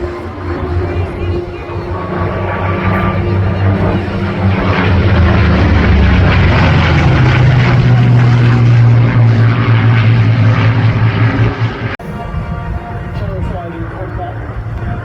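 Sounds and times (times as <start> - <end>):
propeller aircraft flying past: 0.0 - 15.0.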